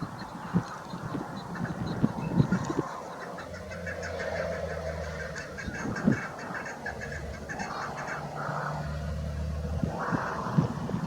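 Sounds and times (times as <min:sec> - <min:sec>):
partridge clucking calls: 0:00.0 - 0:08.8.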